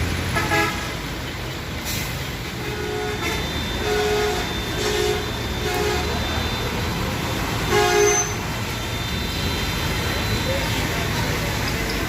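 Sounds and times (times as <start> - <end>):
engine and road rumble: 0.0 - 12.0
vehicle horn honking: 2.6 - 6.7, 7.6 - 9.6.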